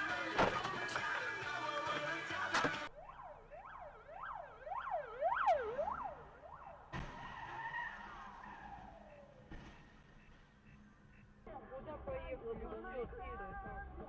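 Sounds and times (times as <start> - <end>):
siren yelping: 2.8 - 9.5.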